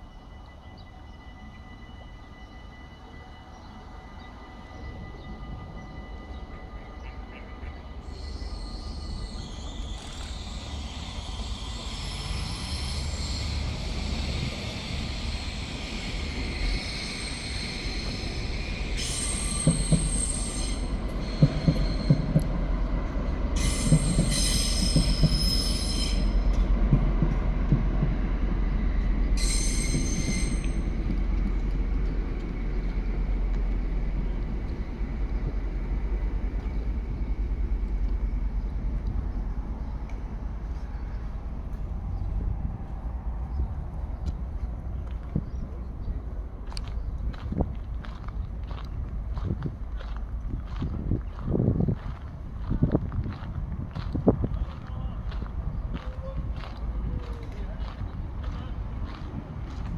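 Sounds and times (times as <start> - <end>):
train rumbling past on rails: 0.0 - 59.9
train wheels squealing: 0.0 - 59.9
train wheels knocking: 21.0 - 22.7, 23.6 - 25.8, 26.4 - 34.8.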